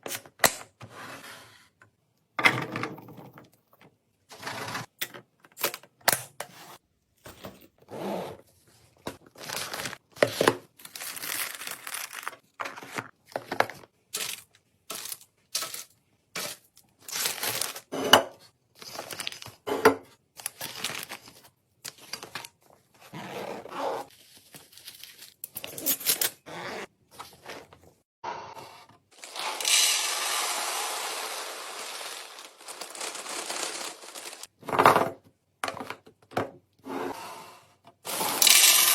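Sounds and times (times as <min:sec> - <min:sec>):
plastic packaging crinkling: 0:29.2 - 0:34.5.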